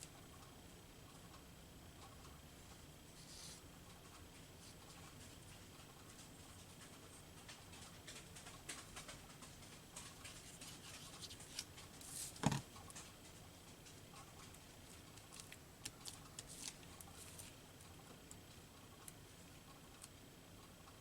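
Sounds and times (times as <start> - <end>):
small clicks of paper pieces: 12.9 - 17.6
paper rustling: 15.2 - 17.6.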